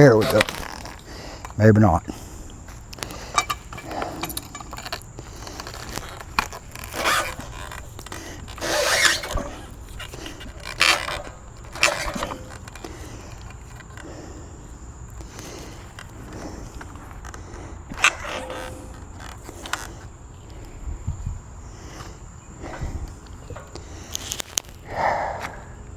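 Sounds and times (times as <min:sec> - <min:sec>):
log scraping against steel: 0:00.0 - 0:14.4, 0:15.0 - 0:20.1.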